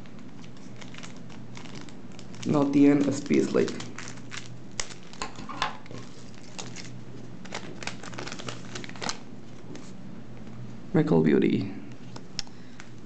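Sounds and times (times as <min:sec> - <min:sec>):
cards and foil wrappers rustling: 0:00.0 - 0:10.0.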